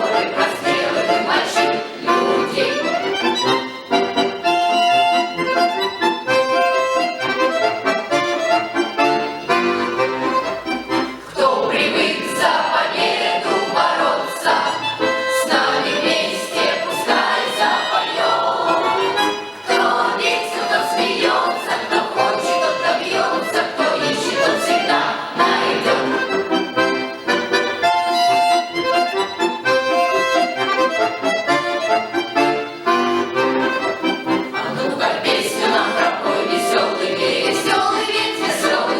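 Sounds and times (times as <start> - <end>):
children's choir singing: 0.0 - 4.2, 9.4 - 27.6, 34.5 - 38.9
accordion playing: 0.0 - 38.9.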